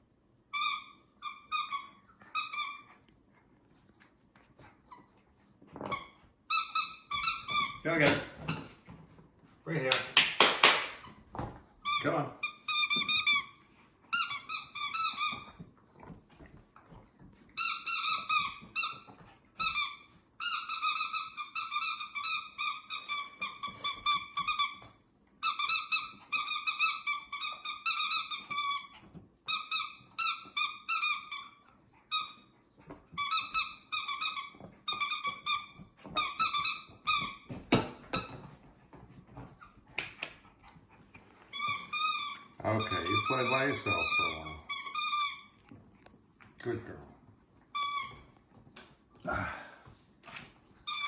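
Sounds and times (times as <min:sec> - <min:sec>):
squeaky dog toy: 0:00.5 - 0:03.0, 0:05.8 - 0:08.8, 0:11.0 - 0:15.6, 0:17.6 - 0:32.5, 0:33.1 - 0:38.6, 0:41.5 - 0:45.6, 0:47.7 - 0:48.3.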